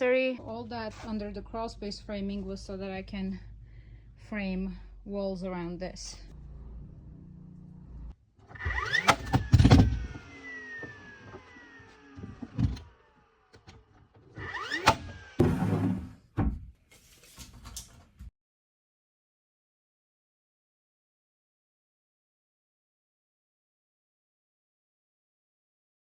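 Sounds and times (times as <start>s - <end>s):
power saw cutting wood: 8.5s - 16.0s.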